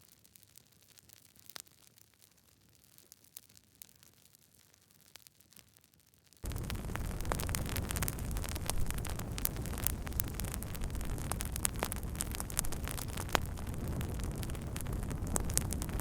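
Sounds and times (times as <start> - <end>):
wood fire crackling: 6.4 - 16.0.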